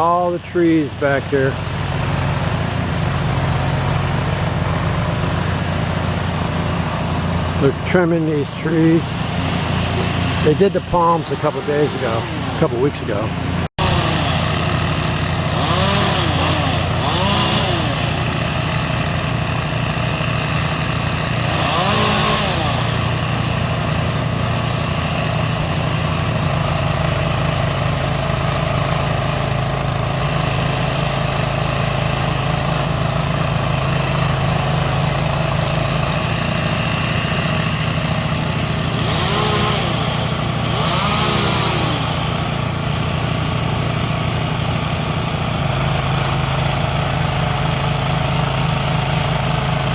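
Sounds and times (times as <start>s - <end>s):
engine running with hissing surges: 0.0s - 49.9s.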